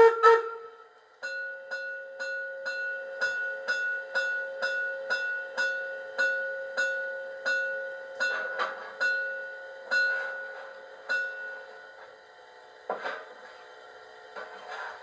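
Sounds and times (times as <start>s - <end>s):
steam exhaust chuffs from loudspeaker: 0.0s - 0.9s
steady ringing tone: 1.2s - 12.0s.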